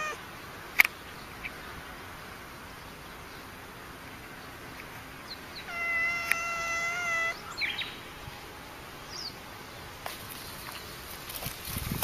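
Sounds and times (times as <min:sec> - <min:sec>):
cat chirping: 0:00.0 - 0:00.2, 0:05.6 - 0:07.8
cat meowing: 0:00.0 - 0:00.2, 0:05.6 - 0:07.4.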